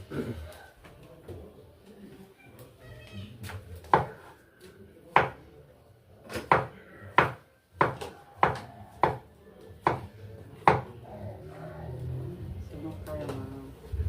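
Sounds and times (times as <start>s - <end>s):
knife chopping on cutting board: 3.8s - 4.2s, 5.1s - 5.4s.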